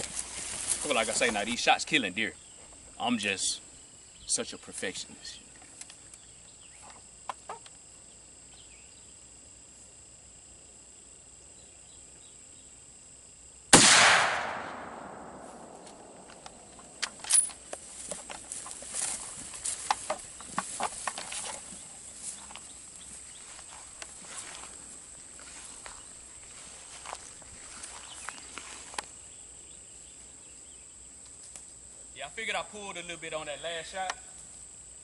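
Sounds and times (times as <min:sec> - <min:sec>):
insects trilling: 0:00.0 - 0:13.8, 0:14.4 - 0:35.0
rifle shot: 0:13.7 - 0:17.0
rifle handling clicks and knocks: 0:15.7 - 0:18.8, 0:19.7 - 0:21.7.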